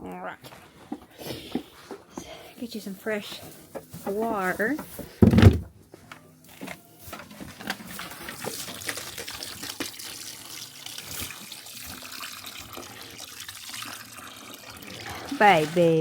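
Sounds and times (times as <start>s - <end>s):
thump: 5.2s - 5.7s
water pouring into a waterer: 7.9s - 16.0s.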